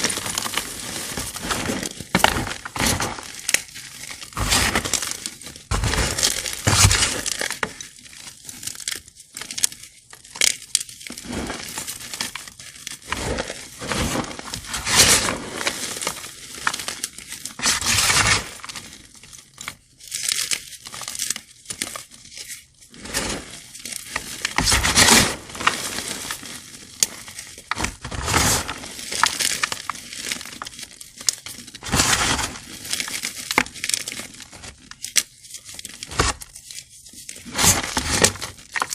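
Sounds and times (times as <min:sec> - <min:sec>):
chalk blocks crunching: 0:00.0 - 0:38.9.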